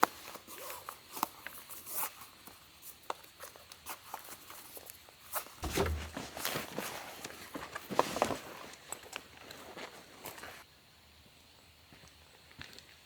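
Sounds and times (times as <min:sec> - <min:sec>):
footsteps on forest road: 0:05.6 - 0:10.6.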